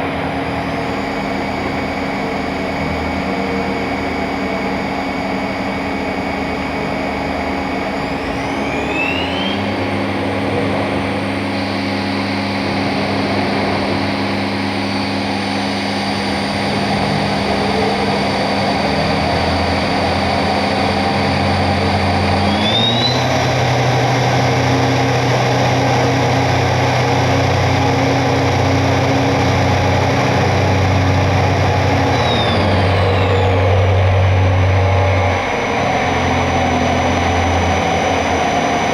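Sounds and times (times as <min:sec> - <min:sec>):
machine spindle whine: 0:00.0 - 0:38.9.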